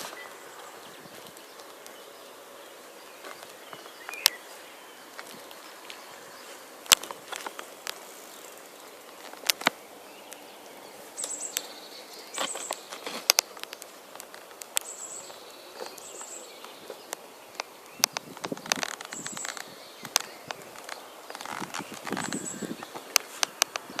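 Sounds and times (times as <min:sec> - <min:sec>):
sharp clicks and taps: 0:15.8 - 0:24.0.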